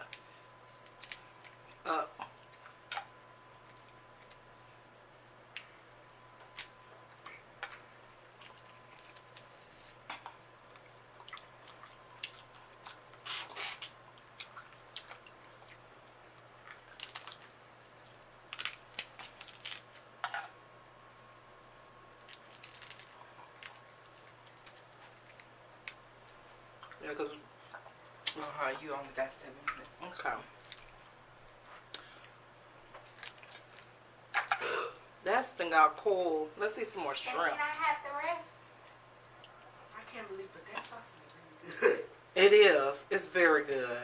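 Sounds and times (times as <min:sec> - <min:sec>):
crab shell cracking: 0:00.8 - 0:01.6, 0:16.4 - 0:20.3, 0:22.1 - 0:26.0, 0:33.0 - 0:34.6
eating sounds: 0:06.6 - 0:20.0, 0:29.7 - 0:35.0.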